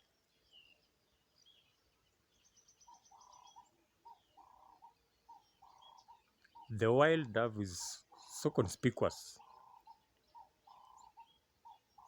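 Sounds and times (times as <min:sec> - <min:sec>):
small bird trill: 0:00.0 - 0:07.4, 0:09.3 - 0:12.0
small birds chirping: 0:00.0 - 0:12.0
dove cooing: 0:09.4 - 0:12.0.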